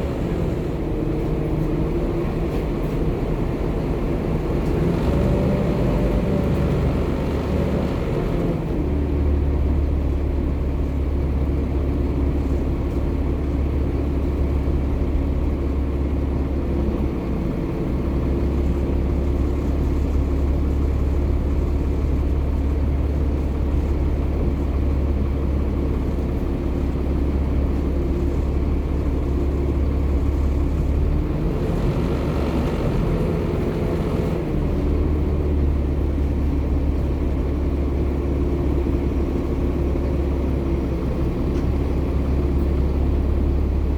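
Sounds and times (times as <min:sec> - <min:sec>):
bus diesel engine drone: 0:00.0 - 0:43.9.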